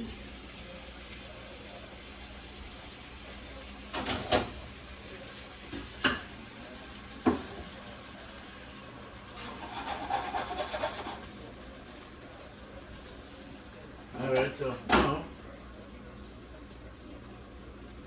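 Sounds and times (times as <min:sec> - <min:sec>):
scraping and rubbing: 0:09.4 - 0:11.3.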